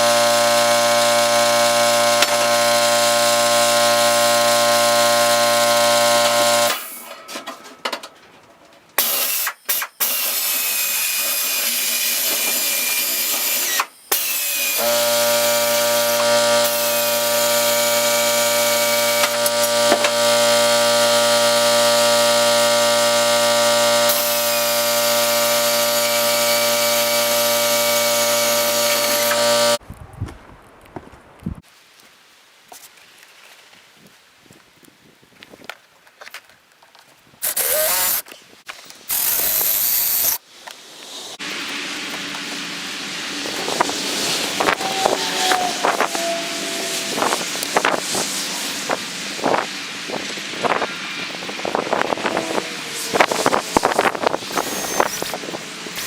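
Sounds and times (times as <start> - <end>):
electric power tool humming: 0.0 - 7.1, 9.0 - 29.8, 37.4 - 38.3, 39.1 - 40.4, 41.4 - 56.0.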